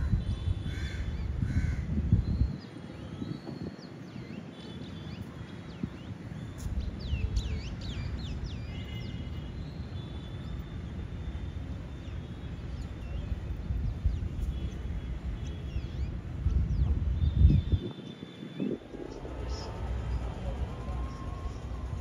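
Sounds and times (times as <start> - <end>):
steady low rumble: 0.0 - 2.5, 12.8 - 17.9, 18.6 - 22.0.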